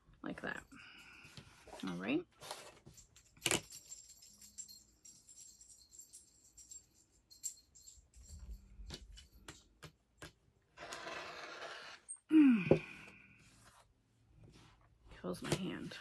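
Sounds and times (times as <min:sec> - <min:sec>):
light clicks and metallic jingles: 0:00.4 - 0:10.2.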